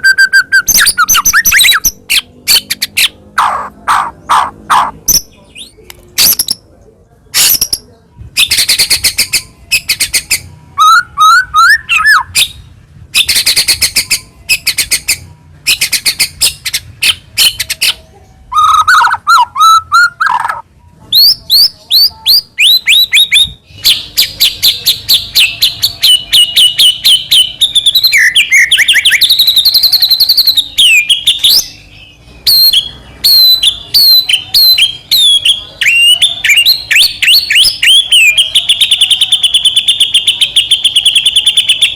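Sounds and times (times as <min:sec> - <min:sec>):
songbird singing: 0:00.0 - 0:41.9.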